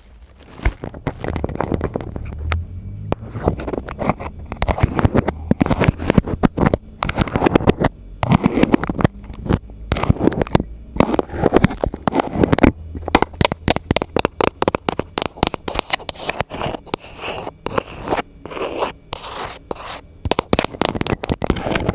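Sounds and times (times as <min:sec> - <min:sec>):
tapping and scratching on objects: 0:00.0 - 0:21.9.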